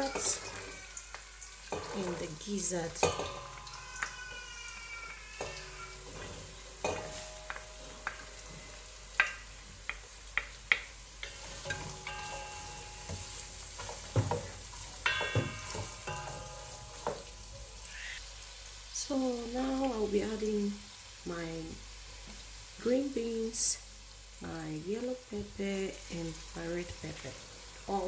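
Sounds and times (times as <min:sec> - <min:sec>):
food sizzling in oil: 0:00.0 - 0:28.0
wooden spoon knocking on pot: 0:05.4 - 0:17.3.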